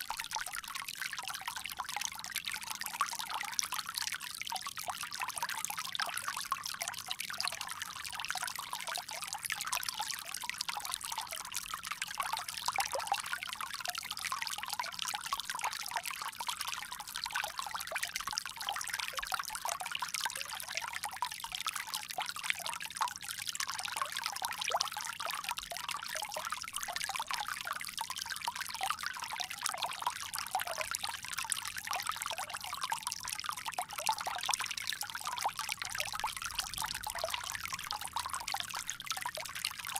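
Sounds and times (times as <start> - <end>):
water pouring from spout: 21.4 - 39.9.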